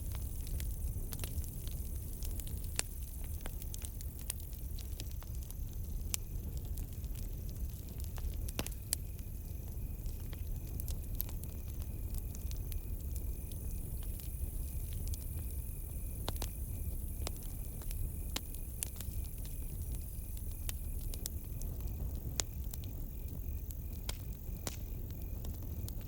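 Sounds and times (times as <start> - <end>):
campfire crackling and popping: 0.0 - 26.0
crickets chirping: 8.7 - 26.0.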